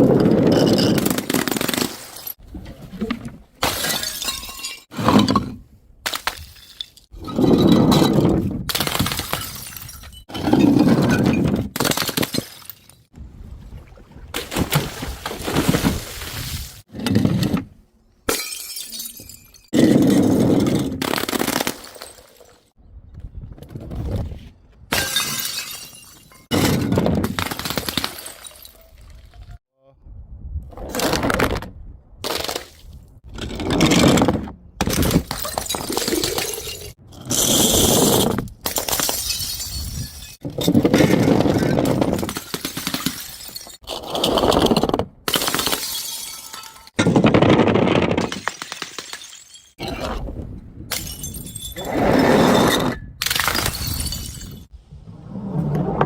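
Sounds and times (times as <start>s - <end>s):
glass bottles smashing: 0.4s - 2.4s, 3.6s - 5.5s, 6.1s - 13.1s, 18.3s - 22.6s, 24.9s - 29.0s, 34.8s - 43.9s, 45.3s - 49.8s, 50.9s - 51.9s, 52.6s - 54.7s
things breaking and crunching: 6.1s - 13.1s, 30.9s - 49.9s.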